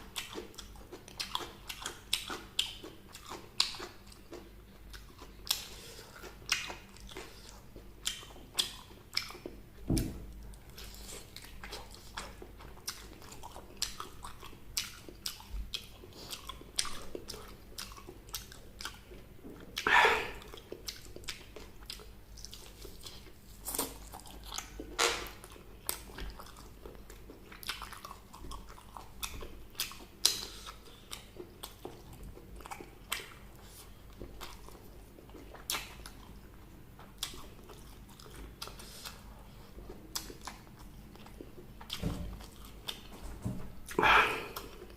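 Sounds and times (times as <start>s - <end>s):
crunching and chewing food: 0.0s - 43.2s, 43.8s - 44.9s.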